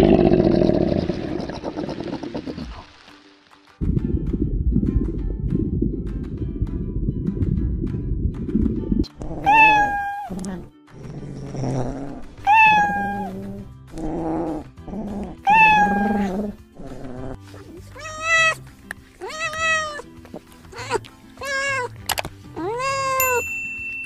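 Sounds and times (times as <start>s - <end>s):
background music: 1.2s - 24.0s
low rumble: 3.8s - 9.1s
cat meowing: 9.4s - 10.7s, 12.4s - 13.4s, 15.4s - 16.4s, 17.8s - 18.6s, 19.2s - 20.1s, 20.7s - 22.0s, 22.6s - 23.4s.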